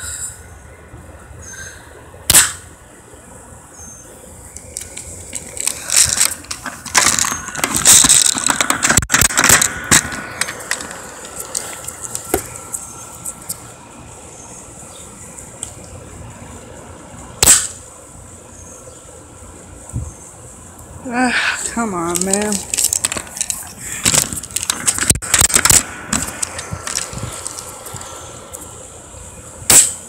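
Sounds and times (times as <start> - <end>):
sharp crack: 2.3 - 2.7, 4.6 - 12.7, 17.4 - 17.8, 22.0 - 28.6, 29.6 - 30.0
clattering and scraping: 4.8 - 12.5, 21.7 - 28.1.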